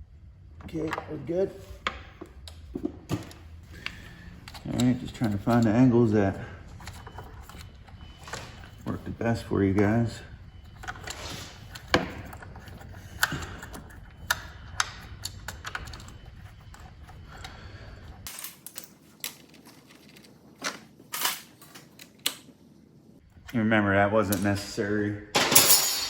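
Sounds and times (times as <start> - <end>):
low background hum: 0.0 - 26.0
hand tools clicking and knocking: 0.6 - 6.1, 9.7 - 17.5.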